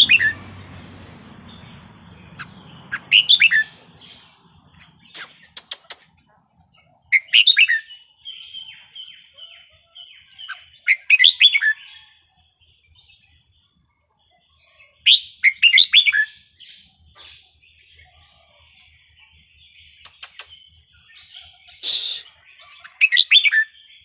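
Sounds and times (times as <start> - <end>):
bulbul singing warbled phrases: 0.0 - 12.0, 14.6 - 24.0
soft bird calls: 0.0 - 12.2, 14.3 - 24.0
sharp clicks: 5.1 - 6.2, 20.1 - 20.5.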